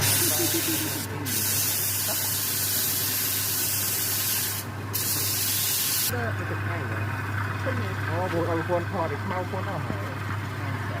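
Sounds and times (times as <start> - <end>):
compressed air hissing: 0.0 - 6.1.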